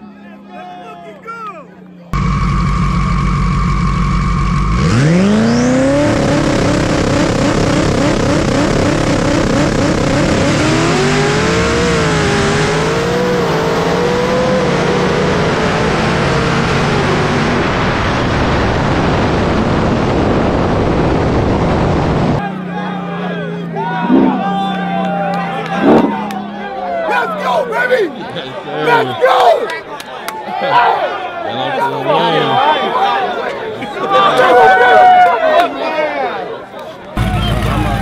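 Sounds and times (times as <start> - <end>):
racing car engines at full throttle: 1.7 - 29.5, 36.8 - 38.0.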